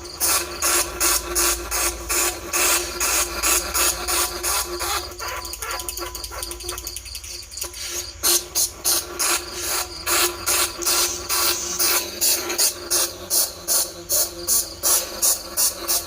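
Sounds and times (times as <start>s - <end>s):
rat squeaking and chittering: 0.0s - 16.0s
high rat squeals: 0.2s - 16.0s.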